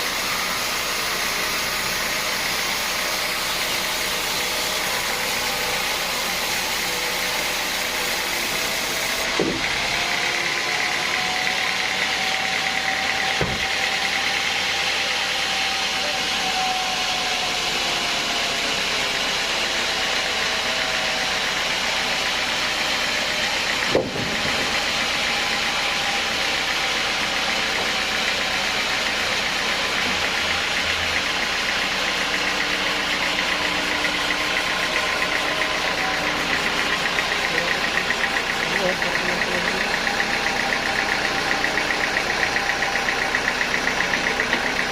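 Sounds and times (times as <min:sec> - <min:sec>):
sawmill machinery droning: 0:00.0 - 0:44.9
sharp knock: 0:09.3 - 0:09.7, 0:13.4 - 0:13.7.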